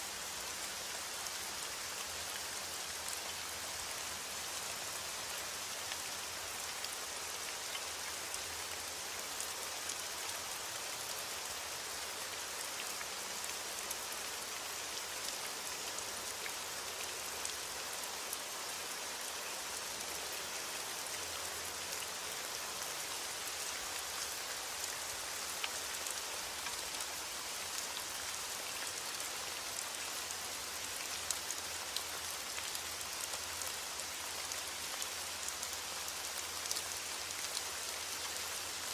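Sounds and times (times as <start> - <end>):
small raindrop ticks: 5.8 - 11.2, 19.3 - 38.9.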